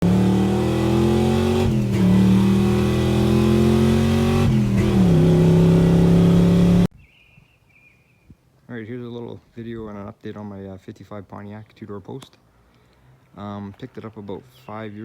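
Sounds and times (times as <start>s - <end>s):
car engine revving through gears: 0.0s - 6.9s.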